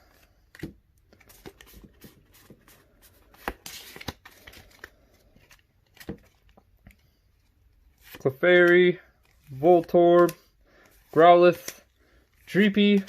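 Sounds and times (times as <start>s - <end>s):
cards clicking and rustling: 0.1s - 7.0s, 7.6s - 13.0s.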